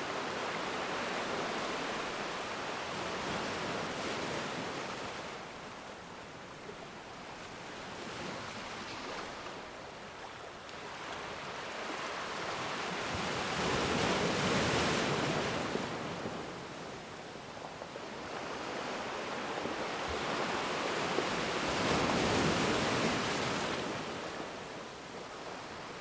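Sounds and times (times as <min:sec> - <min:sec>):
ocean waves washing ashore: 0:00.0 - 0:26.0.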